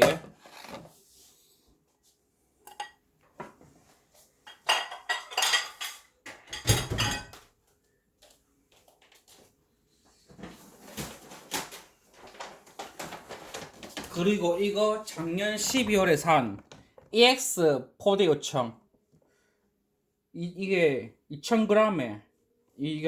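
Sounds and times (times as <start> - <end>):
kitchenware clinking and rattling: 2.7 - 3.0, 4.4 - 7.5.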